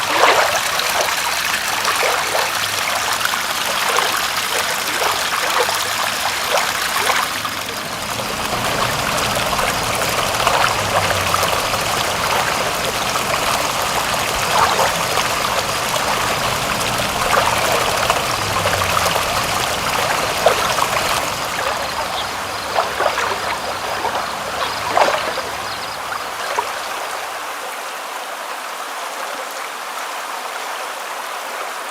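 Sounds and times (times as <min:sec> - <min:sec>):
water drips and splashes: 0:00.0 - 0:27.9
trickling water: 0:00.0 - 0:31.5.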